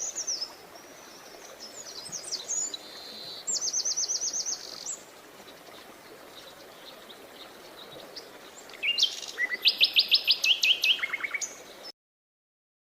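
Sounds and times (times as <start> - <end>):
songbirds chirping: 0.0 - 11.9.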